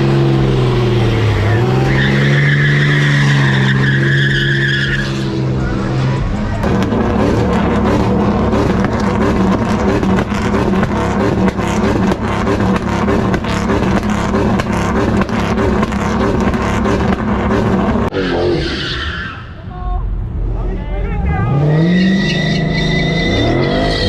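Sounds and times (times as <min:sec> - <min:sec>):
crackling exhaust: 0:00.0 - 0:18.5
car engine at high revs: 0:00.0 - 0:18.7, 0:20.0 - 0:24.0.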